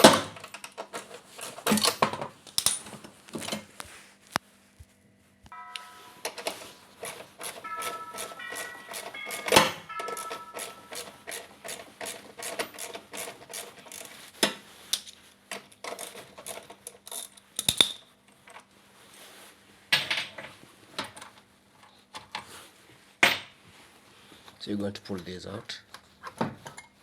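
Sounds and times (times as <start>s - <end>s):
metal parts and tools knocking: 5.6s - 14.2s
ratchet wrench clicking: 10.2s - 14.2s.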